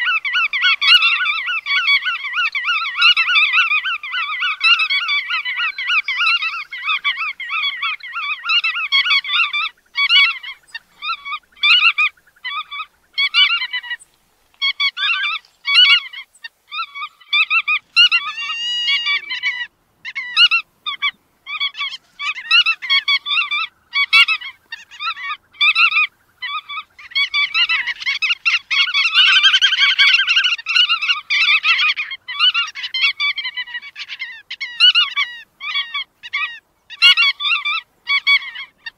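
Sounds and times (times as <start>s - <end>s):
birds honking calls: 0.0s - 38.9s.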